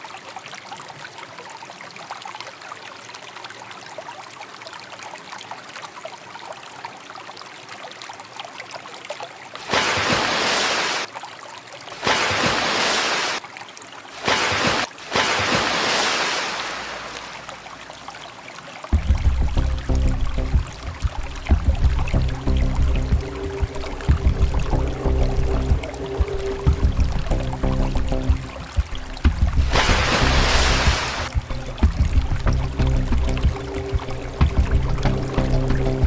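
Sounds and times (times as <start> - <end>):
water trickling: 0.0 - 36.0
water rushing: 9.4 - 11.2, 11.8 - 36.0.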